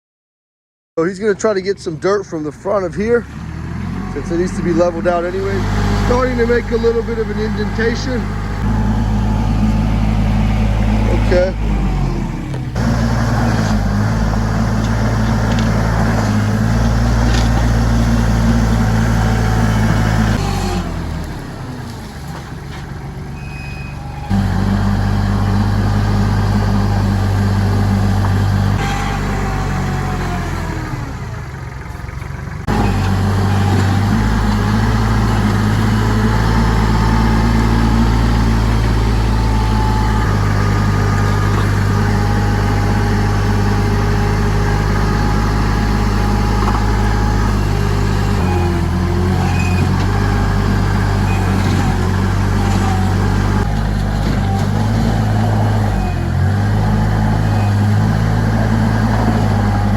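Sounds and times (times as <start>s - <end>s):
tractor engine running: 1.0s - 59.9s
dirt scraping: 3.8s - 23.0s, 32.7s - 59.9s.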